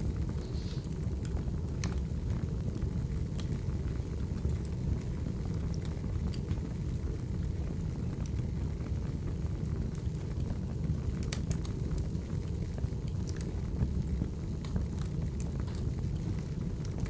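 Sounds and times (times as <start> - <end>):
fire crackles and pops: 0.0 - 17.0
fire flames rumbling: 0.0 - 17.0.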